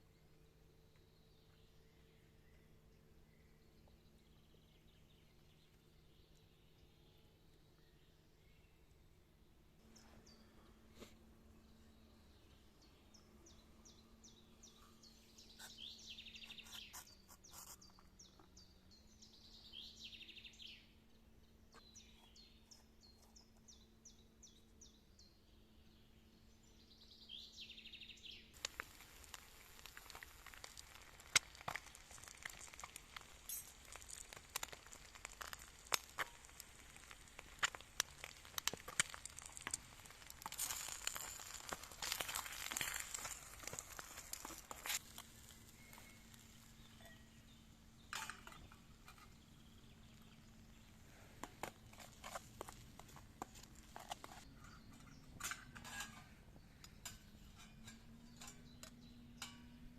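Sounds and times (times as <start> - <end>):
bird singing: 0.0 - 9.0, 11.5 - 51.1, 54.4 - 59.9
crinkling and crackling: 28.6 - 56.3.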